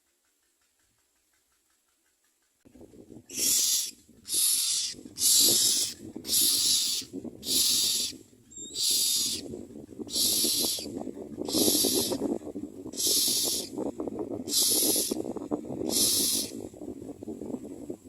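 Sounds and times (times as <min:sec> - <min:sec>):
nestlings hissing begging calls: 0:03.3 - 0:09.4, 0:10.1 - 0:10.9, 0:11.5 - 0:12.2, 0:13.0 - 0:13.7, 0:14.5 - 0:15.2, 0:15.9 - 0:16.6.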